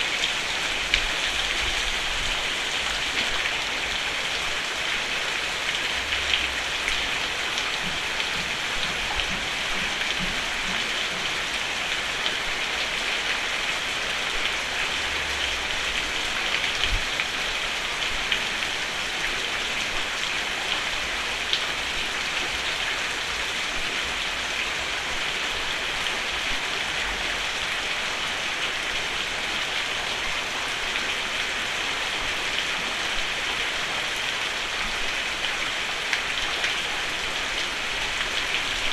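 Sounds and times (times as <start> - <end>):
rain on a roof: 0.0 - 38.9.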